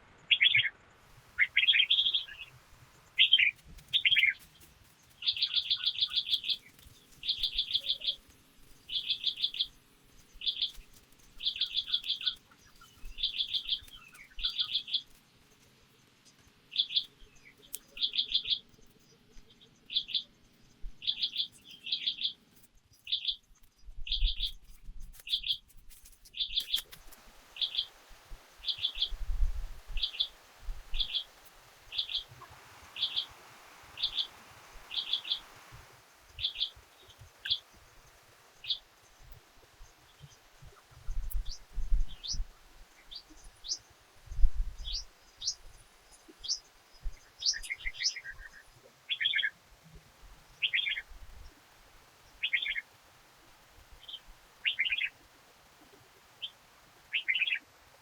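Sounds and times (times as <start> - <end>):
bird calling rapid chirps: 1.4 - 2.5, 3.2 - 4.4, 5.2 - 8.2, 8.9 - 9.8, 26.4 - 28.0, 28.6 - 35.7, 36.3 - 37.7, 52.4 - 52.9, 54.0 - 55.2, 56.4 - 57.6.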